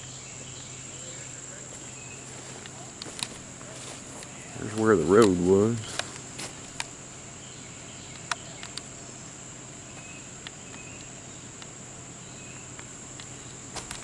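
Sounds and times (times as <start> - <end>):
crickets trilling: 0.0 - 14.0
sharp clicks: 4.2 - 6.9, 8.1 - 8.9.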